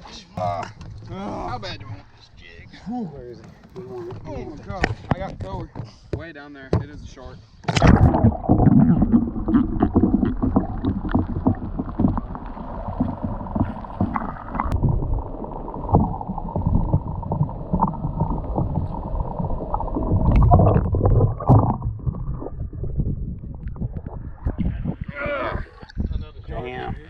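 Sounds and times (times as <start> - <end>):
water slapping against boat hull: 7.6 - 26.1.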